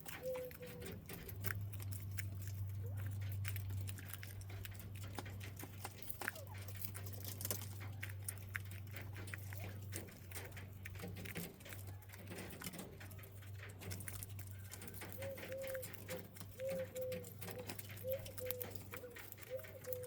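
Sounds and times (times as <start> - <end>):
quail pecking clicks: 0.0 - 20.0
quail soft low calls: 0.1 - 1.0, 16.6 - 20.0.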